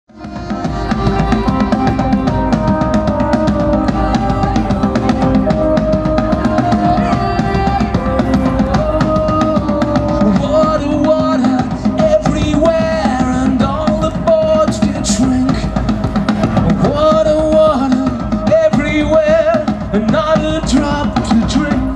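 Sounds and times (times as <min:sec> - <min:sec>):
bagpipes playing melody: 0:00.1 - 0:21.9
pounding bass and snare drums: 0:00.1 - 0:21.9.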